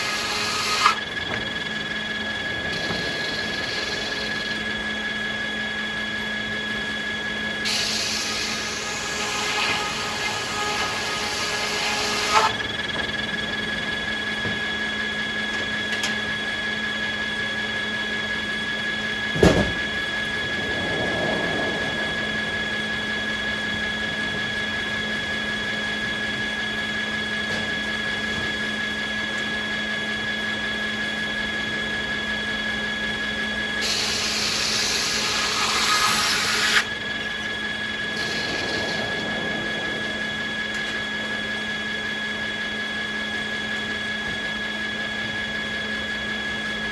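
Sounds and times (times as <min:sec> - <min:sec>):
sawmill machinery whine: 0:00.0 - 0:46.9
loud clunk: 0:19.3 - 0:20.0
loud hissing: 0:33.8 - 0:42.4.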